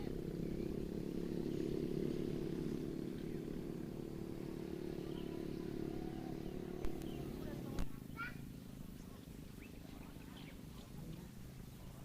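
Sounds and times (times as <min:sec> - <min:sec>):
engine humming: 0:00.0 - 0:12.0
faint bird chirps: 0:00.2 - 0:12.0.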